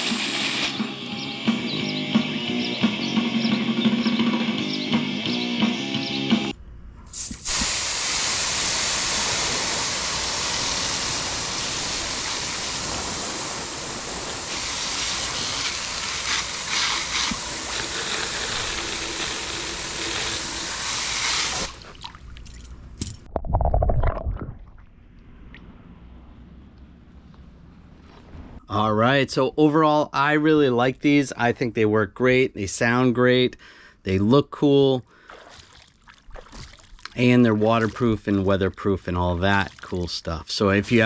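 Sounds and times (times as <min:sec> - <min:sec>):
water spraying onto speakers: 0:00.0 - 0:00.8, 0:07.1 - 0:21.8.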